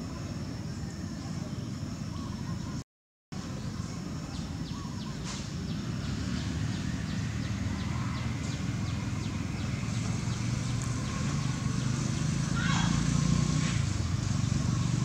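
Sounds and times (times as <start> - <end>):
bird chirping: 3.4 - 13.2.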